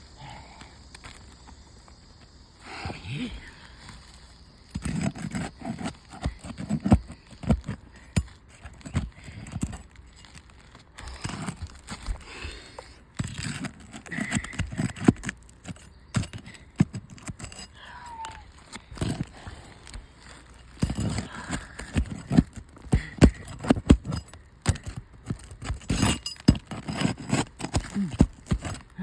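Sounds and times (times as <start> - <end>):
scraping clicking and knocking: 3.8 - 29.0.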